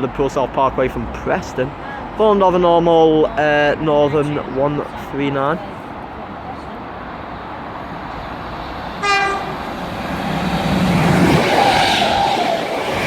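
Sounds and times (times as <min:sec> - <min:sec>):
train passing: 0:00.9 - 0:13.0
train horn blast: 0:09.0 - 0:09.7.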